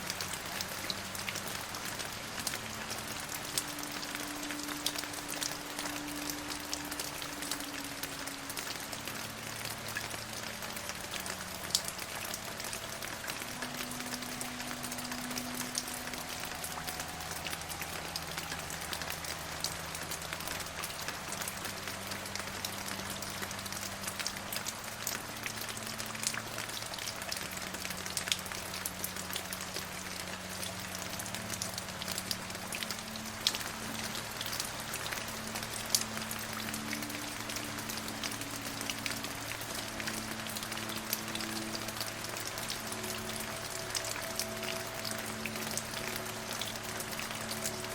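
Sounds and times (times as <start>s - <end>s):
calm music with held notes: 0.0s - 47.9s
steady rain: 0.0s - 47.9s.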